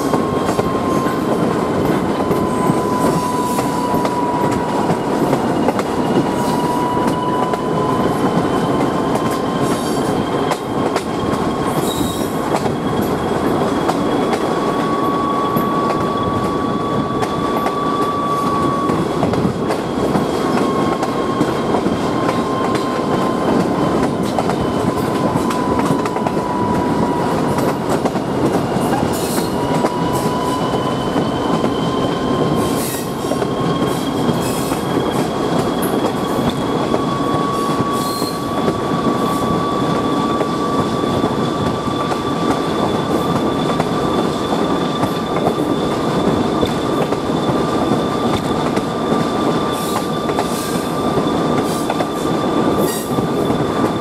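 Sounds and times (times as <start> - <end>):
train wheels rumbling on rail: 0.0 - 54.0
thin wheel squeal: 29.2 - 41.2.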